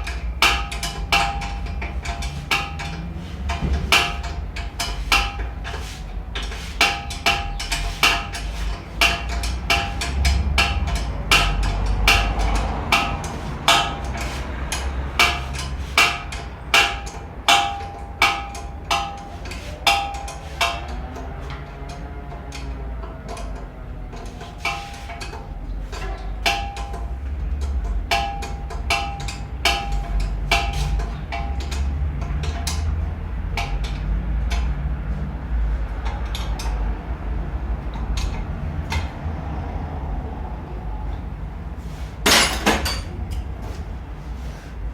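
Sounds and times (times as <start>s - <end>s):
hammer blows on metal: 0.0s - 35.8s
metal tools clinking: 42.2s - 43.5s.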